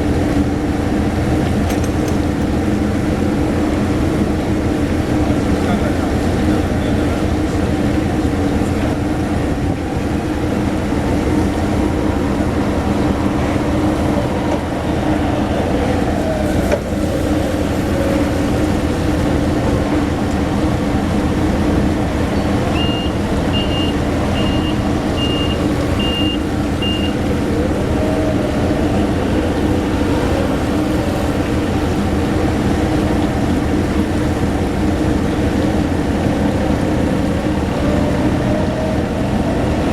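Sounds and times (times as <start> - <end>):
heavy diesel machinery droning: 0.0 - 39.9
short high warning beeps: 22.8 - 27.2.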